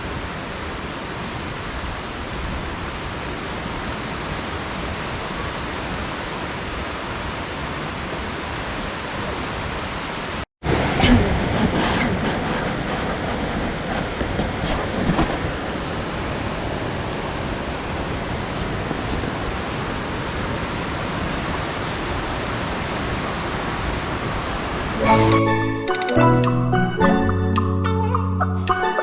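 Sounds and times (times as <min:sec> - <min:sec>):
heavy rain hissing: 0:18.3 - 0:25.2.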